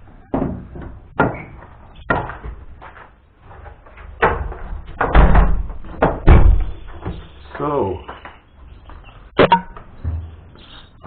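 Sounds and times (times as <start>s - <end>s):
heavy knocks and bumps: 0.3s - 7.4s.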